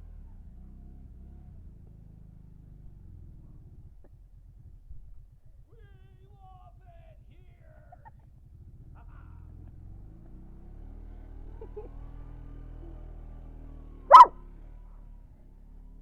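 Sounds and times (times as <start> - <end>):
low engine hum: 0.0 - 16.0
dog barking: 14.1 - 14.4.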